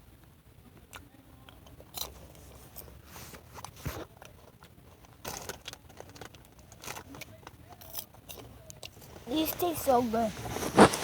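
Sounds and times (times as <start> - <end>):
popcorn crunching while chewed: 0.8 - 3.0, 3.6 - 9.1.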